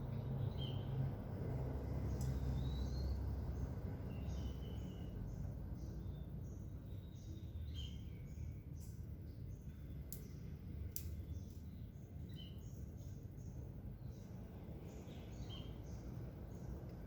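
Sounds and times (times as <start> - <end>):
small birds chirping: 0.0 - 17.0
sharp clicks: 10.1 - 11.7.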